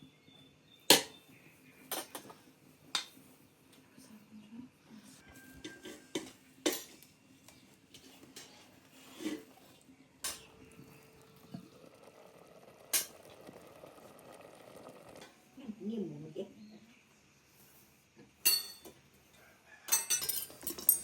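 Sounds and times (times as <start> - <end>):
cutlery and dishes clinking: 1.9 - 3.2, 5.6 - 7.1, 18.4 - 19.0, 19.8 - 21.0.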